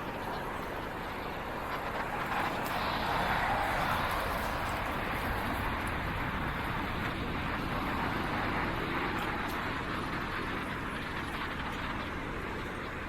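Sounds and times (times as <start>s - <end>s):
city traffic rushing: 0.0s - 13.0s.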